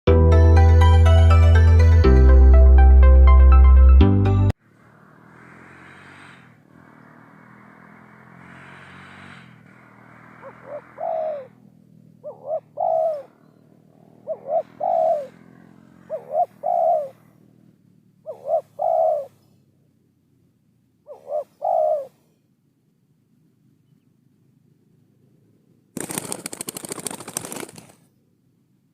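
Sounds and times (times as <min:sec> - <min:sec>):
dove cooing: 0:10.4 - 0:17.4, 0:18.2 - 0:19.5, 0:21.1 - 0:22.3.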